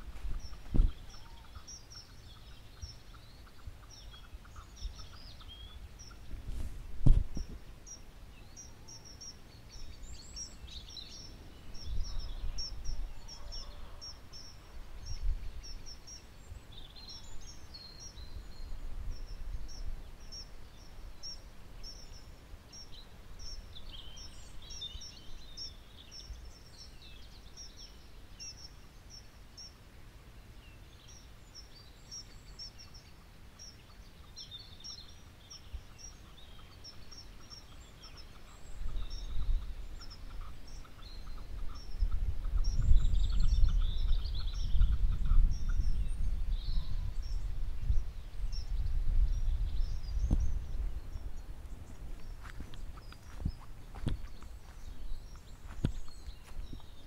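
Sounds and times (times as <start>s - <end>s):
other bird calls: 0.0s - 29.8s, 31.0s - 57.0s
birds chirping: 0.0s - 57.0s
low rumbling wind gusts: 9.7s - 22.1s, 38.6s - 57.0s.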